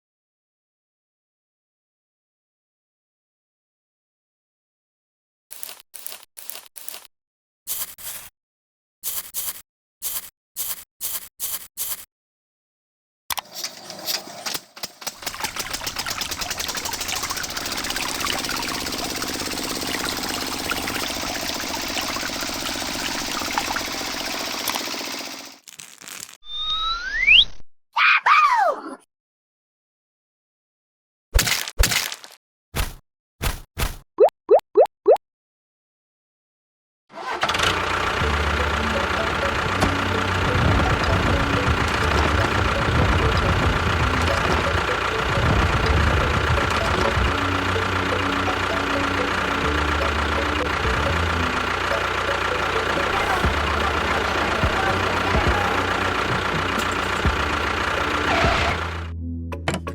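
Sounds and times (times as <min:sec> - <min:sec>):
small electric motor rattling: 0:13.4 - 0:25.6, 0:37.5 - 0:59.1
engine running with knocking: 0:14.8 - 0:25.6, 0:37.4 - 0:59.1.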